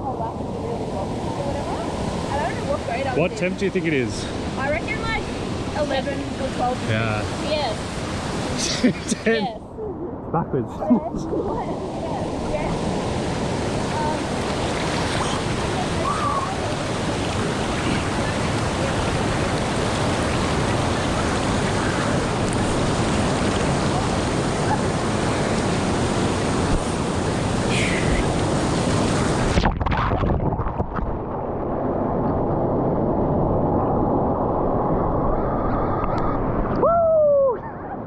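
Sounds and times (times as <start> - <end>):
waterfall rushing: 1.4 - 9.5, 11.0 - 29.6.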